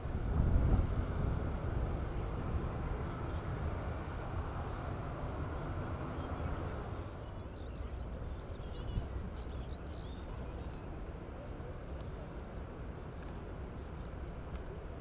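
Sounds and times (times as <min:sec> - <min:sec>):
small birds chirping: 0:06.0 - 0:14.9.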